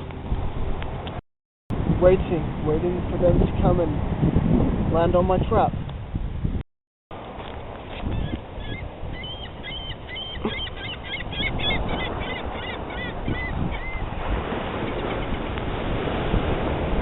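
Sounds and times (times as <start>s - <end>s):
gulls calling: 8.1s - 15.6s.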